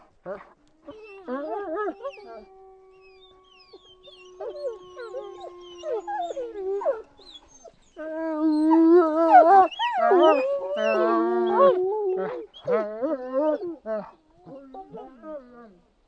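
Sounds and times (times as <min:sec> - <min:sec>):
dogs whining: 0:00.9 - 0:12.9.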